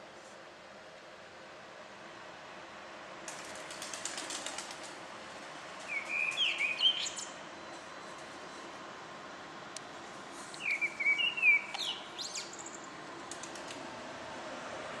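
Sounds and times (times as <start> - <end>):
city noise hiss: 0.0 - 15.0
birds chirping: 5.8 - 8.7, 10.6 - 13.0.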